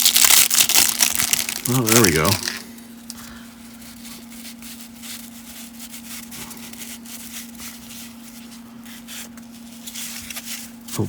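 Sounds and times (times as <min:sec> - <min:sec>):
plastic pack crinkling: 0:00.0 - 0:03.2
faint steady hum: 0:00.0 - 0:11.0.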